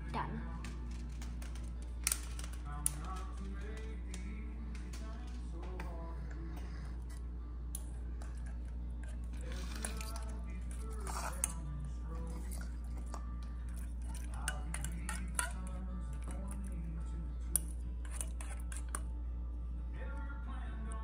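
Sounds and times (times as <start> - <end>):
faint background music: 0.0 - 21.0
utensil clicking against bowl: 0.6 - 6.0, 7.7 - 16.9, 17.5 - 19.1.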